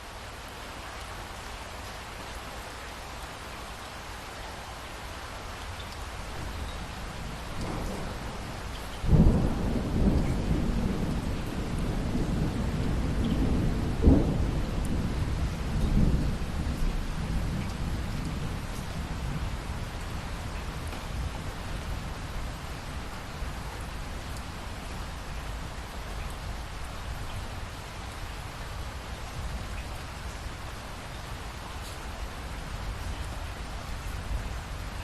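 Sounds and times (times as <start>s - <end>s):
steady rain: 0.0s - 35.0s
thunder rumbling: 7.4s - 20.0s.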